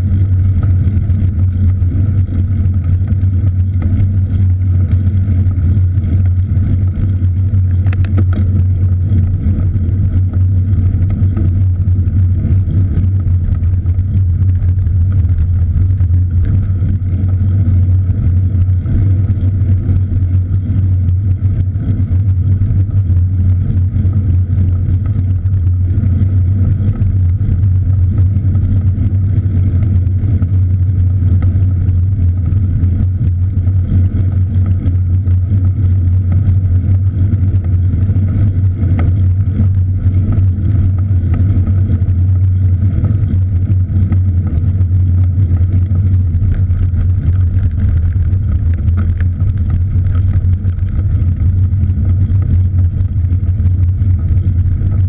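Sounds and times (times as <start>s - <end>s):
wind rumble: 0.0s - 55.0s
road noise: 22.8s - 55.0s.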